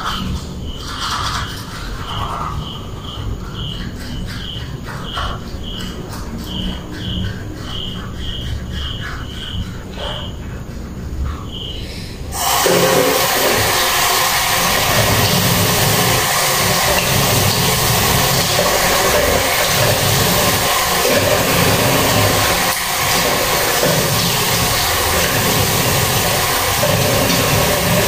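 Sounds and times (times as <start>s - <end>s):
tap water running into sink: 12.3s - 28.0s.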